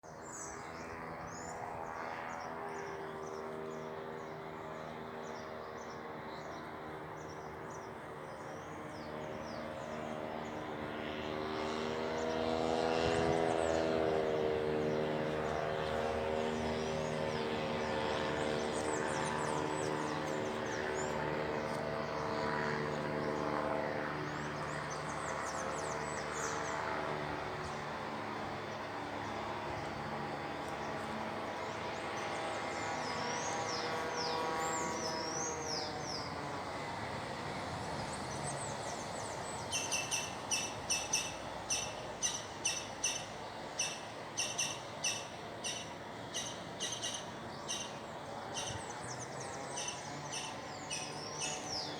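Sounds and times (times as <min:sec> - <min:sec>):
birds chirping: 0:00.1 - 0:51.9
engine drone: 0:00.1 - 0:51.9
loud sharp bird calls: 0:38.7 - 0:51.9.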